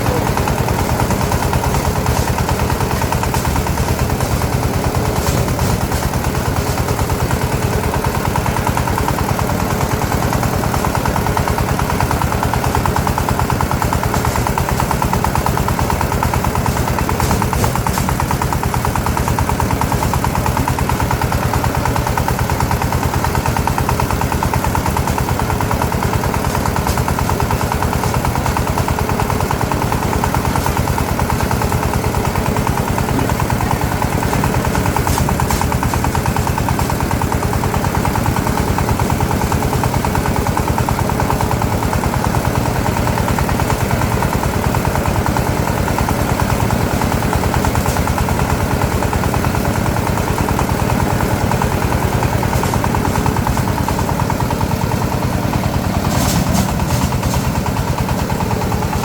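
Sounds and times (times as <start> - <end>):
small engine puttering: 0.0 - 59.0.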